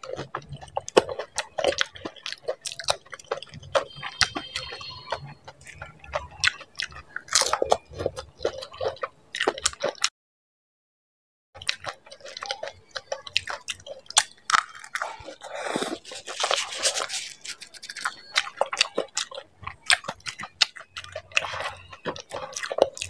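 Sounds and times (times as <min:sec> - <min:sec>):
wet chewing: 0:00.0 - 0:10.1, 0:11.6 - 0:23.0
crisp shells crunching: 0:12.6 - 0:23.0.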